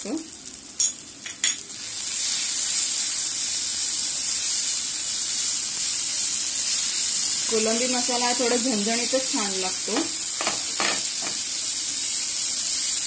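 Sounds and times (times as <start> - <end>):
food sizzling in oil: 0.0 - 13.0
spatula clattering on pan: 10.0 - 11.4.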